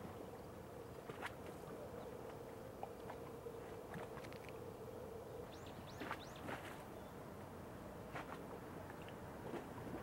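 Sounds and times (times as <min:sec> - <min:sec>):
faint outdoor hiss: 0:00.0 - 0:10.0.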